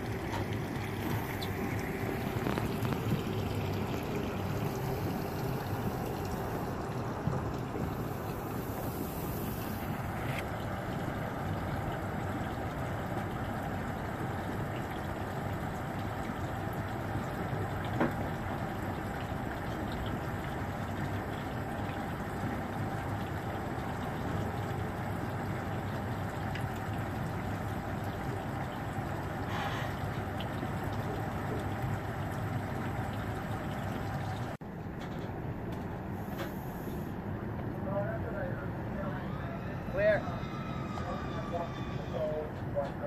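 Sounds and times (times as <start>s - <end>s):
engine running: 0.0s - 19.8s.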